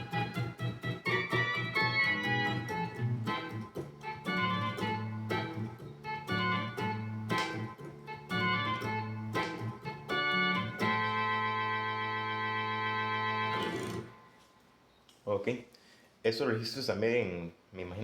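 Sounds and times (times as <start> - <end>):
organ playing chords: 0.0 - 14.4.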